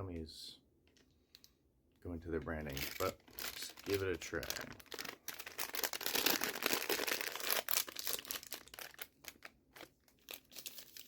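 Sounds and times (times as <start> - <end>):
candy bag crinkling: 2.5 - 11.0.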